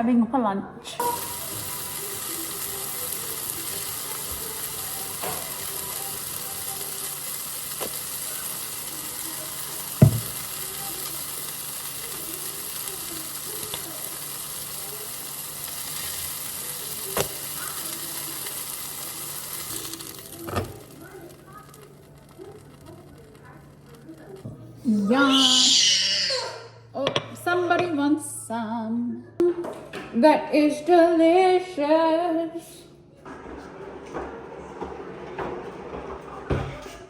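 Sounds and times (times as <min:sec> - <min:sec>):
food sizzling in a frying pan: 0:01.0 - 0:26.3.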